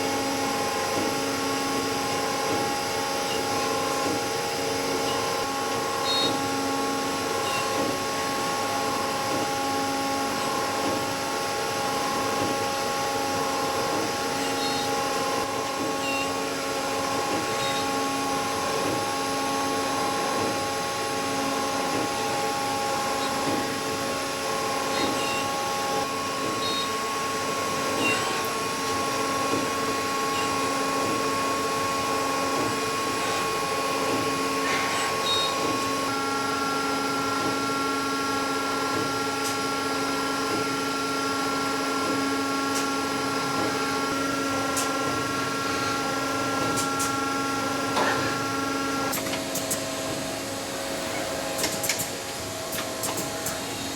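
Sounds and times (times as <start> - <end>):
whining machine tones: 12.0 - 18.6.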